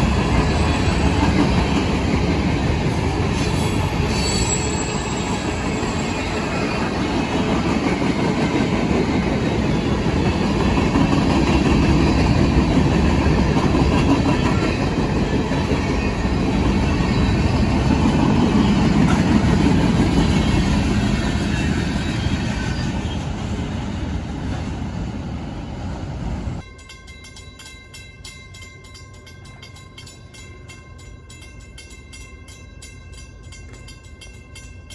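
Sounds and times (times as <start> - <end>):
freight train rumbling past: 0.0 - 27.2.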